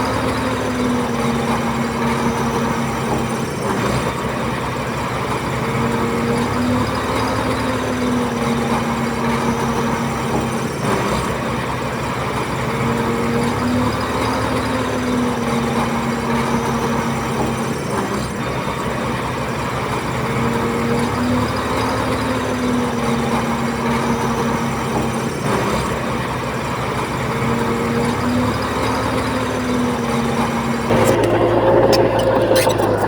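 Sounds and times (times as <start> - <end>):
heavy diesel engine under load: 0.0 - 33.0.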